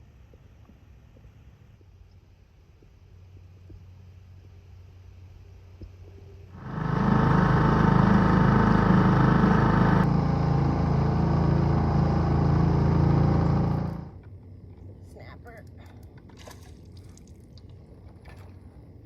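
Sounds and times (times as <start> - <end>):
outboard motor running: 6.5 - 14.3.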